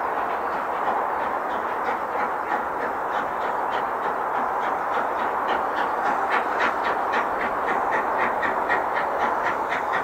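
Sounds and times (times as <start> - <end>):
train running: 0.0 - 10.0.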